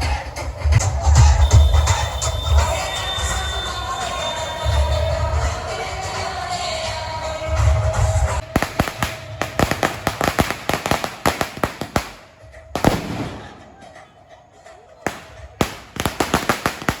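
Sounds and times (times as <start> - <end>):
loud firecracker blast: 8.4 - 14.0, 15.1 - 17.0
firecrackers cracking: 8.4 - 14.2, 15.0 - 17.0.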